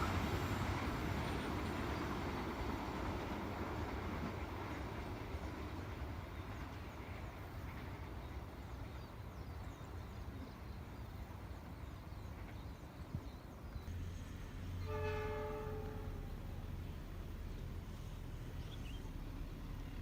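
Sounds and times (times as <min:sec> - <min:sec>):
train rumbling past: 0:00.0 - 0:20.0
locomotive horn: 0:14.7 - 0:16.7.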